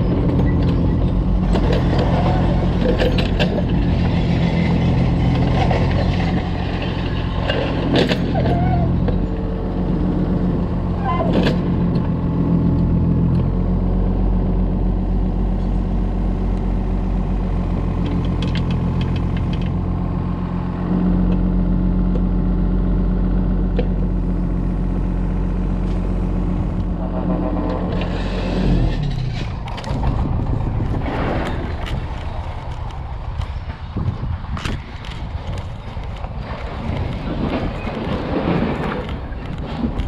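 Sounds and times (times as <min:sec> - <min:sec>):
clatter and knocks: 0:00.0 - 0:09.3, 0:26.8 - 0:40.0
diesel engine running under load: 0:00.0 - 0:40.0.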